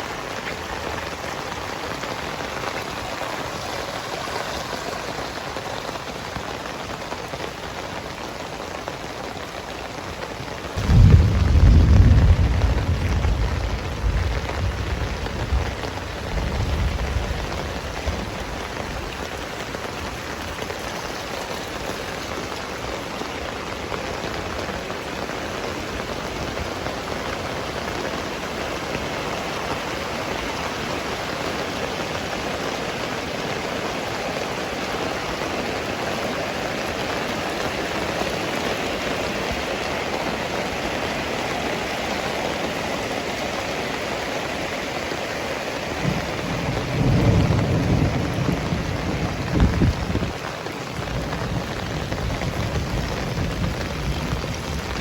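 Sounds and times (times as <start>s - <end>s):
heavy rain falling: 0.0s - 55.0s
thunder rumbling: 10.8s - 20.8s, 46.0s - 55.0s.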